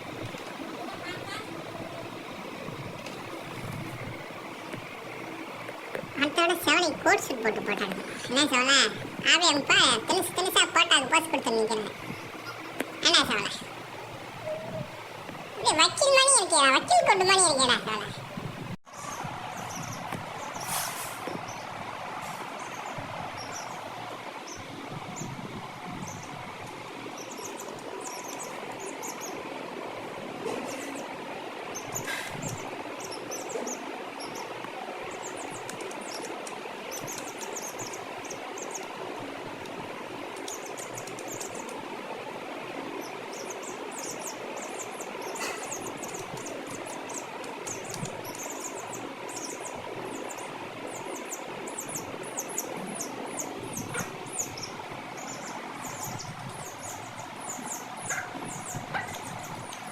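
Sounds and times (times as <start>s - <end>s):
steady background hiss: 0.0s - 59.9s.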